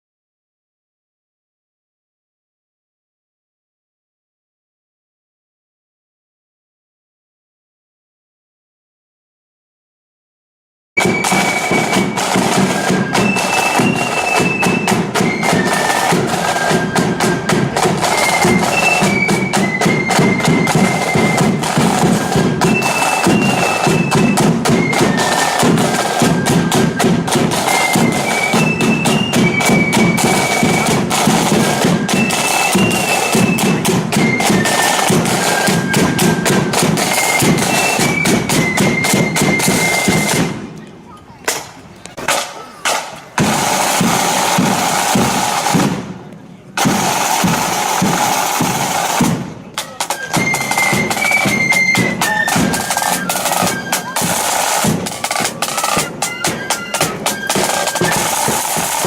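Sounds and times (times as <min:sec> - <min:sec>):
rapid loud drumming: 0:11.0 - 0:40.6, 0:42.2 - 0:59.0
flutes playing march tune: 0:11.0 - 0:46.1, 0:46.8 - 0:59.0.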